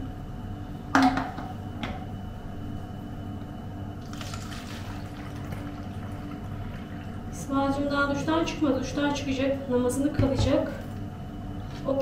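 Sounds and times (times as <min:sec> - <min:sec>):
steady low hum: 0:00.0 - 0:12.0
liquid pouring: 0:04.0 - 0:07.3.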